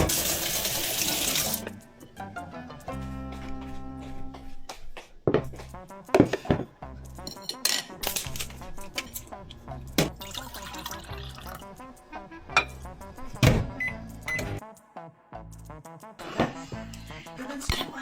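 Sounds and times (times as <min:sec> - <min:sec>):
running water: 0:00.0 - 0:01.7
background music: 0:00.0 - 0:18.0
dishes and utensils clinking: 0:06.2 - 0:10.8, 0:12.6 - 0:12.9.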